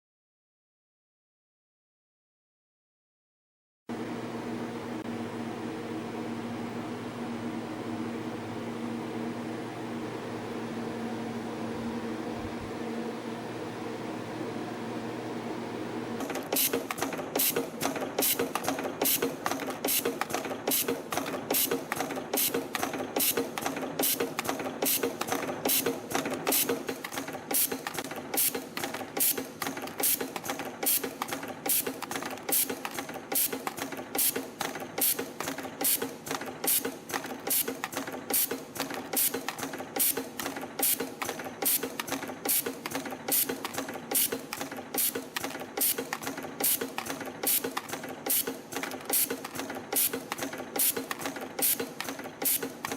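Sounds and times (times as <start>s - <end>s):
spring coiling machine running: 16.2s - 52.9s.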